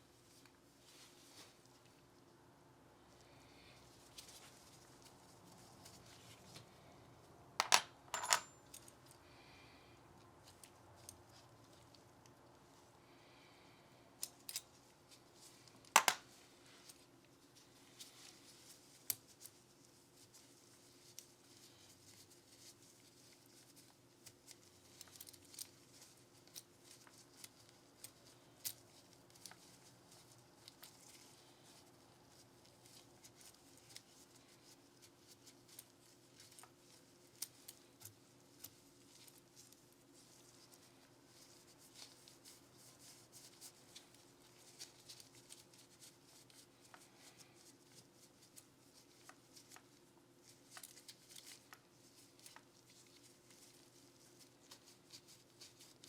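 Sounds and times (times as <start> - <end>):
faint steady hum: 0.0 - 56.0
soft brushing: 0.2 - 2.0
pistol parts clicking: 7.6 - 8.5, 16.0 - 16.2
small tool clicks and taps: 16.0 - 16.2.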